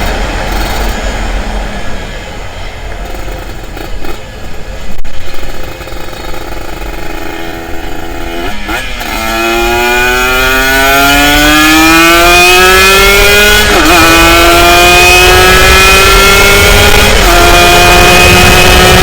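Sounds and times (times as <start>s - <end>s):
racing engine at full throttle: 0.0s - 19.0s.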